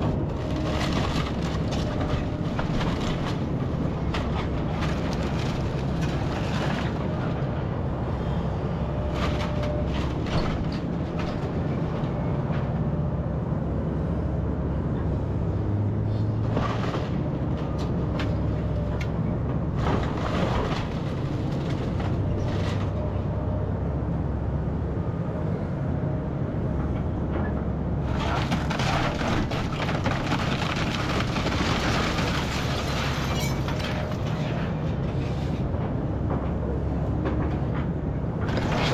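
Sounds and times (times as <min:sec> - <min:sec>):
debris cracking and crunching: 0:00.0 - 0:07.3, 0:28.1 - 0:34.7, 0:38.4 - 0:38.9
crashing and clattering: 0:28.1 - 0:34.6.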